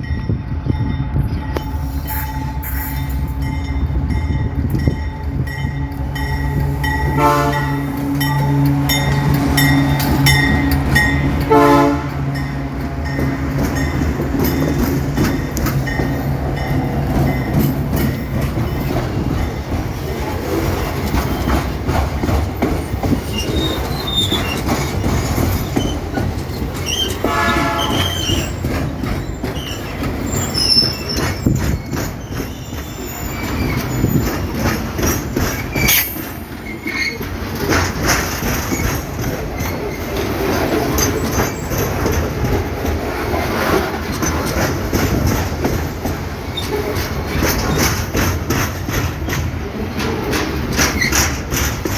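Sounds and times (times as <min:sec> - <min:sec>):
freight train rumble: 0:00.0 - 0:51.9
wheels clacking over rail joints: 0:01.4 - 0:51.9
wheel squeal: 0:23.1 - 0:34.4, 0:35.0 - 0:37.3.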